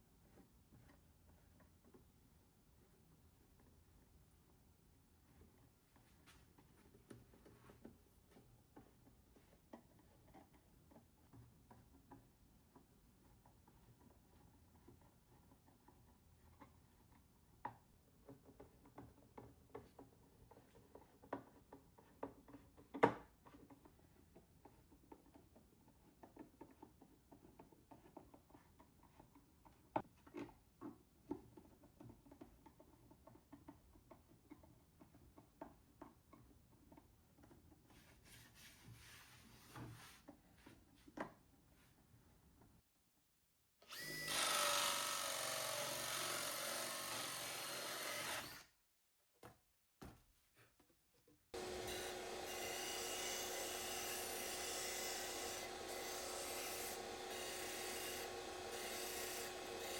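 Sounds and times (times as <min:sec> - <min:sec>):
power tool running with whine: 0:43.9 - 0:48.6, 0:51.6 - 0:59.9.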